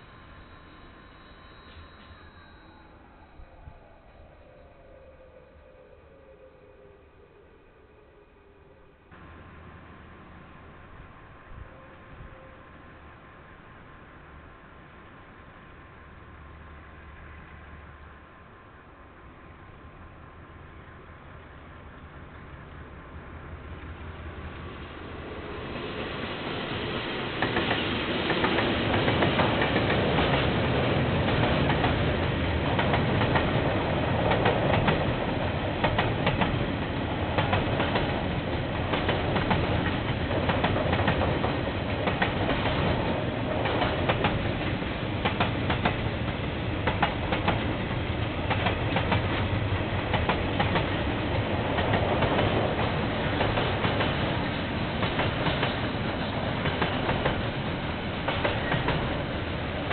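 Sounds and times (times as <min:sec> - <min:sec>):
train wheels clattering over track: 0:27.2 - 0:59.9.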